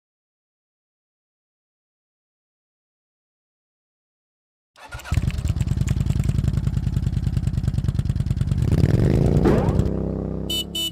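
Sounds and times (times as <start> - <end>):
motorcycle engine running: 4.8 - 10.9.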